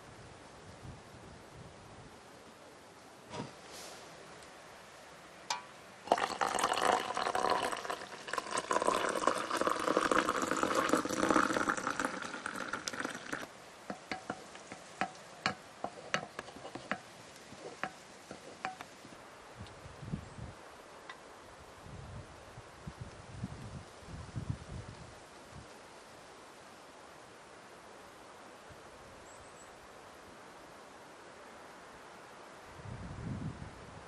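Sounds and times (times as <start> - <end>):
liquid pouring into container: 6.0 - 13.5.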